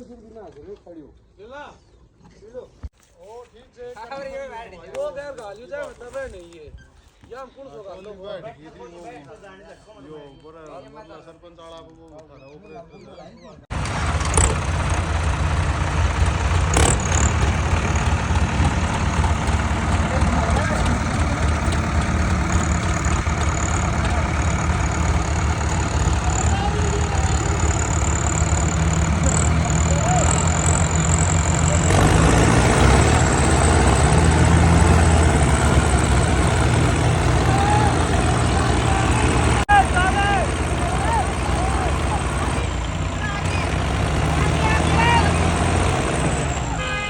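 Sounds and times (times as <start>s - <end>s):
tractor diesel engine rumbling: 13.7s - 47.0s.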